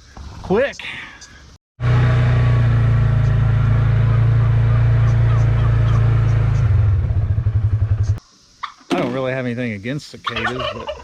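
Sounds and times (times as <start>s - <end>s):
small engine humming: 1.8s - 8.2s.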